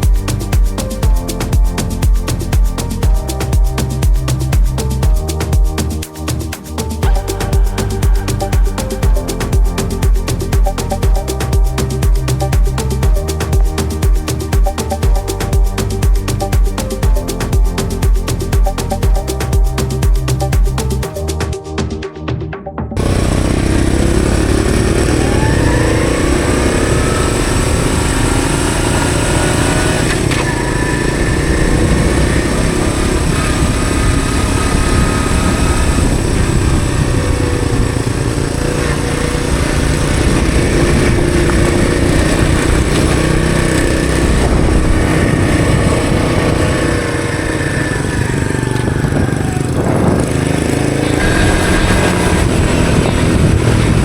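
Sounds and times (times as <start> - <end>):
motorcycle engine running: 0.0 - 21.1, 23.0 - 54.0
steady rush of noise: 23.0 - 54.0.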